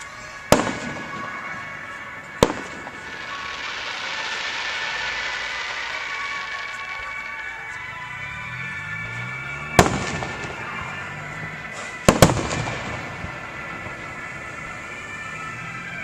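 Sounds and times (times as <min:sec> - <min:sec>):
echo of bangs: 0:00.4 - 0:06.4, 0:09.7 - 0:11.0, 0:11.6 - 0:14.5
firework shells bursting: 0:00.5 - 0:07.4.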